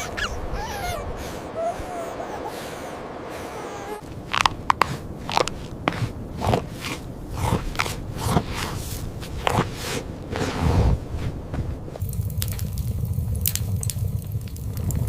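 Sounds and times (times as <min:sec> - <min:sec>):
footsteps crunching in snow: 0:04.0 - 0:12.1.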